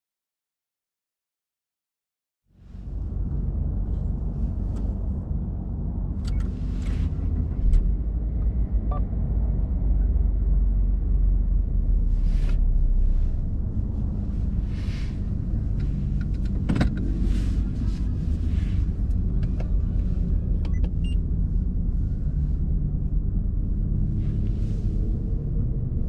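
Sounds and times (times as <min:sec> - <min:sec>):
car engine idling: 0:09.3 - 0:26.0.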